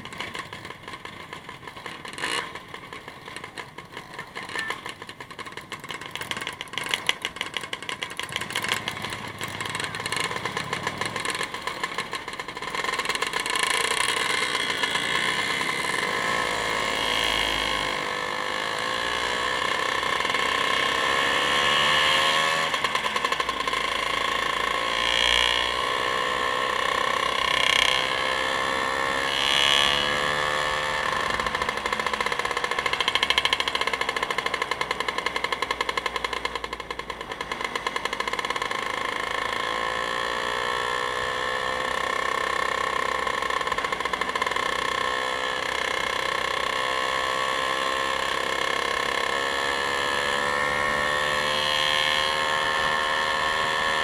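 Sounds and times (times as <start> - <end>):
vehicle engine revving: 8.2 - 36.4.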